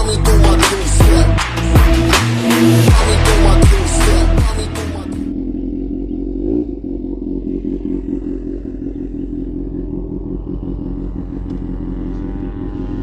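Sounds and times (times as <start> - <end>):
motorcycle engine idling: 2.9 - 13.0.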